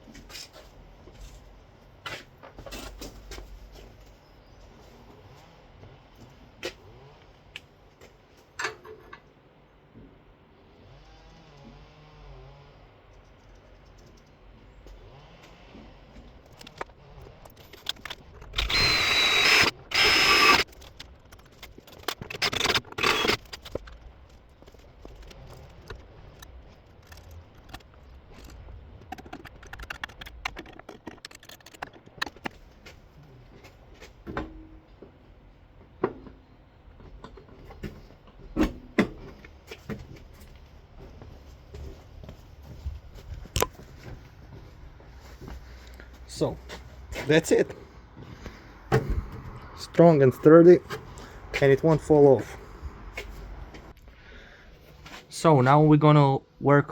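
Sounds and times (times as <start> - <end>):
tools and metal parts clinking: 16.4 - 32.6
electric drill whining: 17.1 - 23.9.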